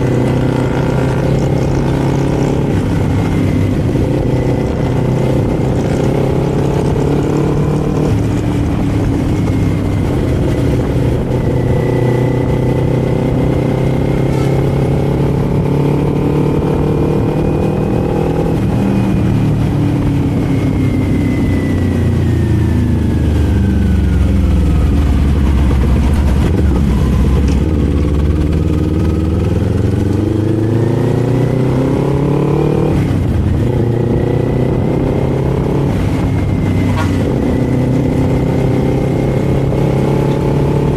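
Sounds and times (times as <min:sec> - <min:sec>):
motorcycle engine under way: 0:00.0 - 0:40.9.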